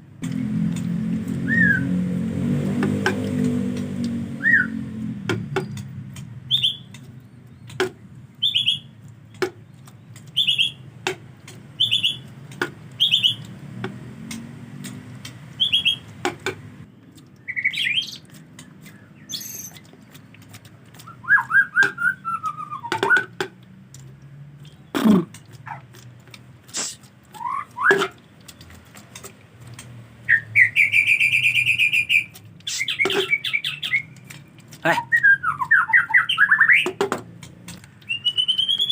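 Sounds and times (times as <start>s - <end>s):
sharp bird clicks: 5.3s - 38.9s
bird repeating high call: 11.8s - 12.2s.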